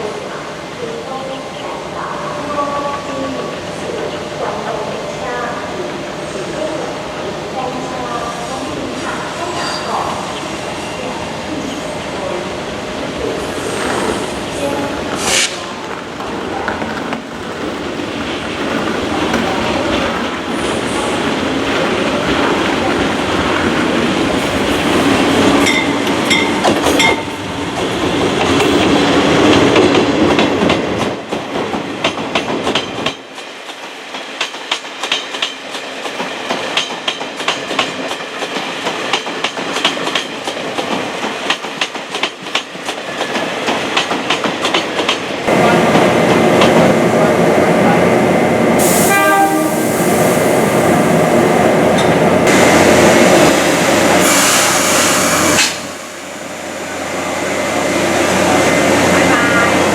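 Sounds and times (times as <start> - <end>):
train running noise: 0.0 - 59.9
wheel and rail clicks: 13.0 - 27.3
train horn: 48.8 - 50.2.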